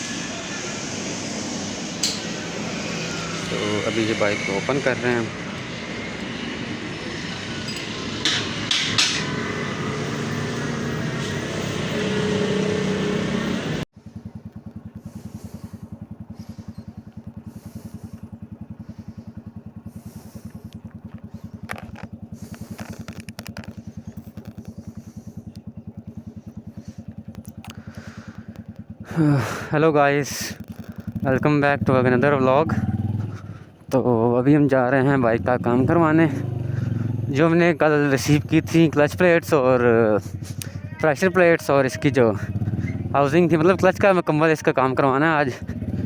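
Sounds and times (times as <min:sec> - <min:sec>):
shop noise: 0:00.0 - 0:13.8
motorcycle engine idling: 0:00.1 - 0:46.0.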